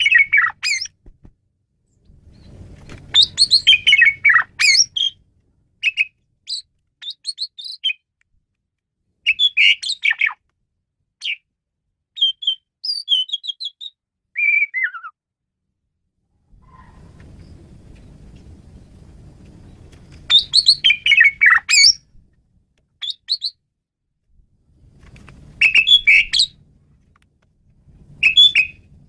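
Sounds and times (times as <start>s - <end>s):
faint low rumble: 0.0s - 6.8s, 15.6s - 22.8s, 24.2s - 29.0s.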